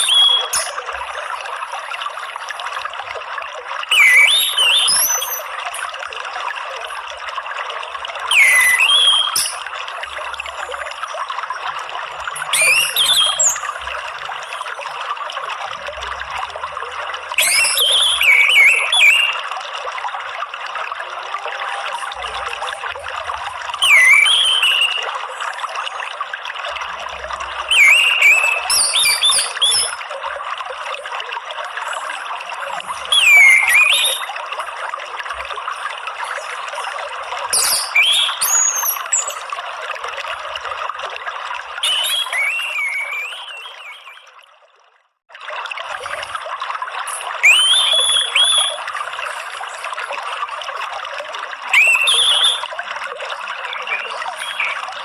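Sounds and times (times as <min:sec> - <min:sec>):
thrush whistling: 0:00.0 - 0:00.9, 0:03.9 - 0:05.5, 0:08.3 - 0:09.6, 0:12.4 - 0:13.9, 0:17.4 - 0:19.4, 0:23.8 - 0:25.1, 0:27.6 - 0:30.0, 0:33.1 - 0:34.4, 0:37.5 - 0:39.4, 0:41.8 - 0:44.3, 0:47.4 - 0:48.8, 0:51.7 - 0:52.7
water trickling: 0:00.0 - 0:55.0.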